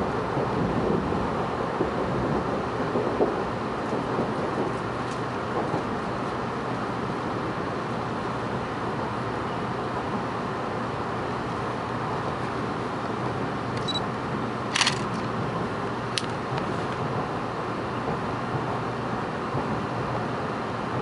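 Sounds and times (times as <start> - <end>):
train cabin rumble and hiss: 0.0 - 21.0
sharp clicks: 14.7 - 15.3.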